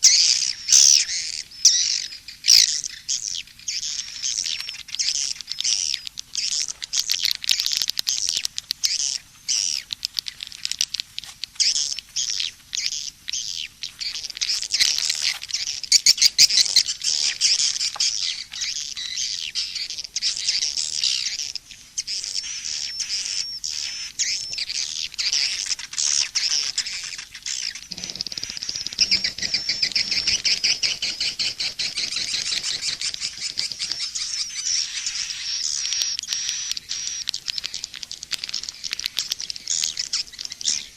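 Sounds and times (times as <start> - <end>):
swiftlets twittering: 15.9 - 40.9.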